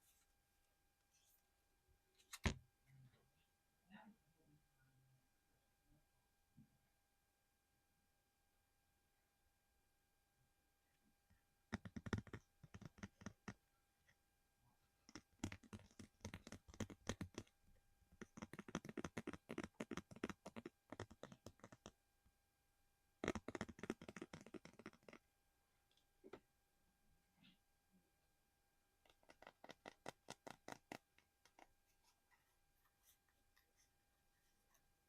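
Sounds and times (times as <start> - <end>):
rapid tapping and clicking: 11.7 - 13.6, 15.1 - 17.5, 18.2 - 22.0, 23.2 - 25.2, 29.1 - 31.7.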